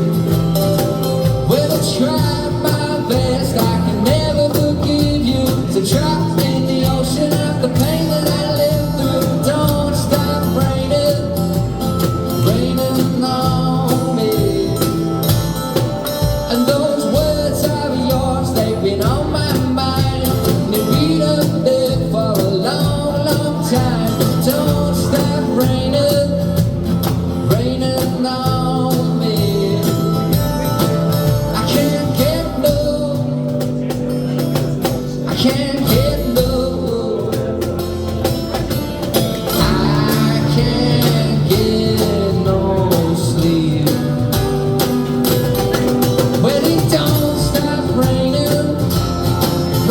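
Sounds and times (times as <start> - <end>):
drums: 0.0 - 49.9
guitar: 0.0 - 49.9
person singing: 39.4 - 45.0, 45.8 - 49.9.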